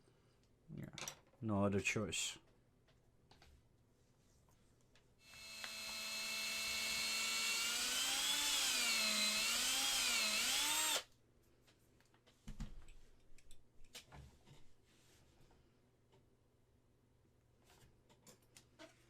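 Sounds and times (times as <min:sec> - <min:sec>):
small electric drill running: 0:05.2 - 0:11.1.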